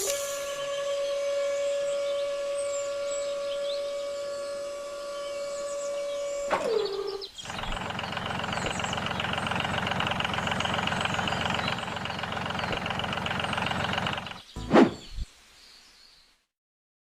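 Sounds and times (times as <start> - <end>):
siren-like tone: 0.0 - 7.2
engine running with rattling pulse: 0.0 - 14.5.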